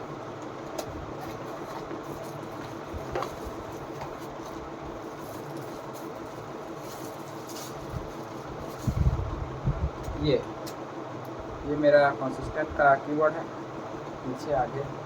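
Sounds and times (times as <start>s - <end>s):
mechanical room hum: 0.0s - 15.0s.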